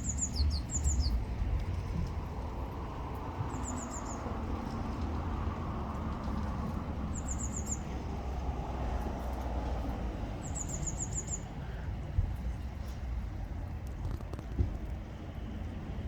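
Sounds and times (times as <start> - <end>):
blue tit trilling: 0.0 - 1.2.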